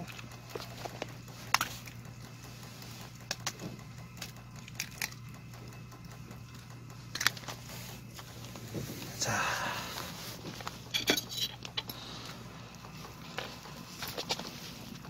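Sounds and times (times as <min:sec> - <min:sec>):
steady low hum: 0:00.0 - 0:15.0
sharp clicks and taps: 0:00.1 - 0:08.5.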